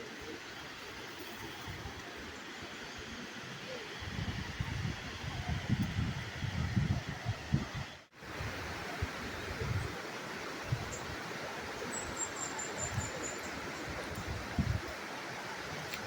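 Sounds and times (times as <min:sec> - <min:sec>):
wind gusts on microphone: 0:03.7 - 0:16.0.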